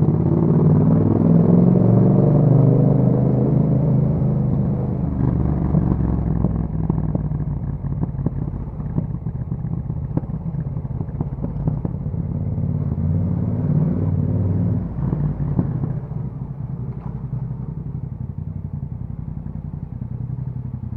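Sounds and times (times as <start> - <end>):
motorcycle engine at low revs: 0.0 - 20.9
exhaust clicks and crackles: 4.4 - 12.6, 14.8 - 20.9.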